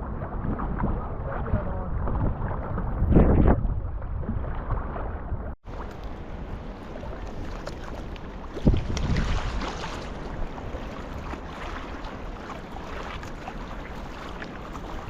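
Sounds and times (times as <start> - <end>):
water splashing against hull: 0.0 - 15.0
wind noise on microphone: 0.0 - 15.0
paddle strokes: 4.2 - 15.0.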